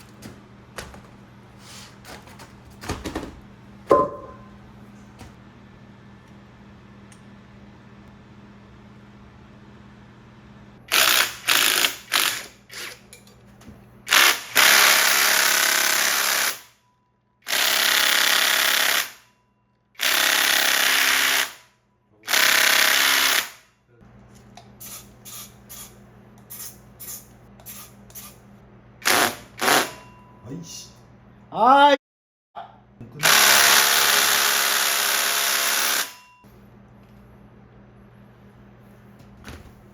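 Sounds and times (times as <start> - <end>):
power tool running: 10.9 - 13.0, 14.1 - 16.7, 17.5 - 19.2, 20.0 - 21.6, 22.3 - 23.6, 29.0 - 30.0, 33.2 - 36.2.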